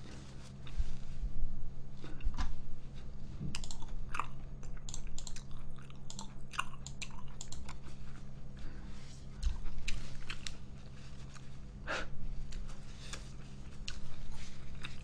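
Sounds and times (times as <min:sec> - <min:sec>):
person chewing noodles: 0:03.6 - 0:08.6, 0:09.4 - 0:10.7, 0:13.7 - 0:15.0
wet mouth clicks and smacks: 0:04.7 - 0:07.7.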